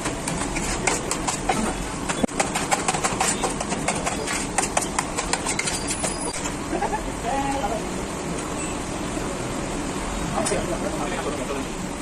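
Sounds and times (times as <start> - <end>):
sharp clicks and clatters: 0.0 - 6.5.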